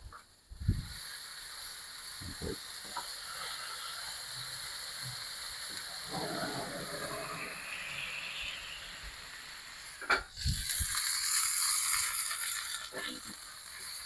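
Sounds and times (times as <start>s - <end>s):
burgers sizzling on a hot plate: 0.0s - 14.0s.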